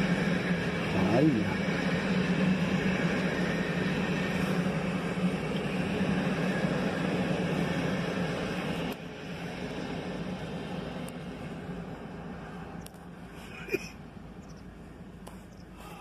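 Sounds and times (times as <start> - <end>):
train rushing past: 0.0 - 13.4.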